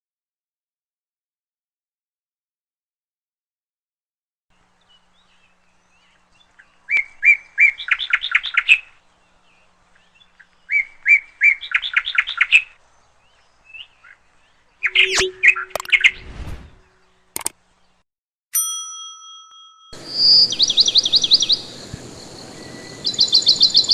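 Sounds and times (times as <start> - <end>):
songbird singing: 4.6 - 18.0, 20.0 - 23.9
bird calls: 4.8 - 18.0, 20.0 - 23.9
clicks: 17.4 - 17.6.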